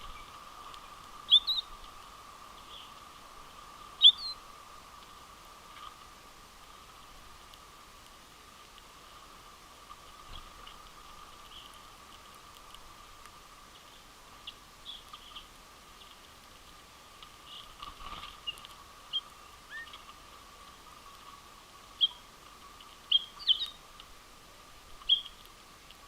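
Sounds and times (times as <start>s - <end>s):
finches chirping: 0.0s - 1.8s, 2.6s - 3.0s, 4.0s - 4.4s, 18.4s - 20.1s, 22.0s - 22.3s, 23.1s - 23.8s, 25.0s - 25.4s
faint hum and hiss: 0.0s - 26.0s.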